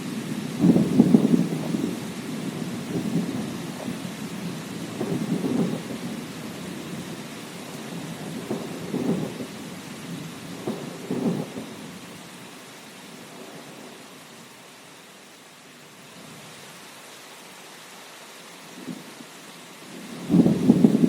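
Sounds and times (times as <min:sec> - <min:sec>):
thunder rumbling: 0:00.0 - 0:12.1, 0:19.9 - 0:21.0
steady rain: 0:00.0 - 0:21.0.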